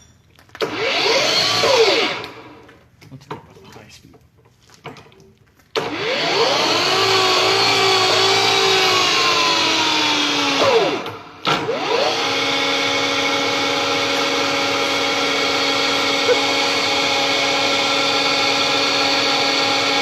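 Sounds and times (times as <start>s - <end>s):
machine tool motor whining: 5.8s - 20.0s.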